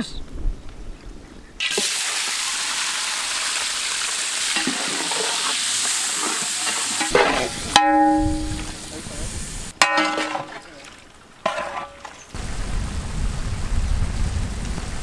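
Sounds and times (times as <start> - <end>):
prawns sizzling in hot oil: 1.6 - 9.8
short ringing clink: 7.8 - 8.7
ladle stirring in metal pot: 11.4 - 12.3.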